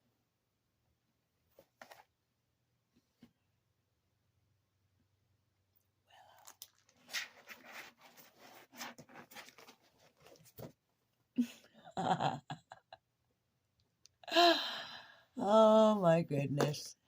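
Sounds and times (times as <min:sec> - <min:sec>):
cat scratching and rustling: 0:06.9 - 0:10.7.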